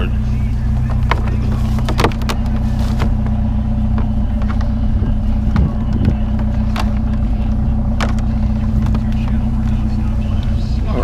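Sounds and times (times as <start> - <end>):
vehicle engine idling: 0.0 - 11.0
items knocking and clattering: 0.8 - 4.8.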